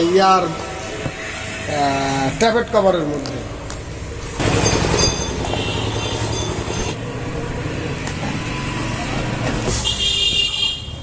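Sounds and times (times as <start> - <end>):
engine running: 3.2 - 9.6.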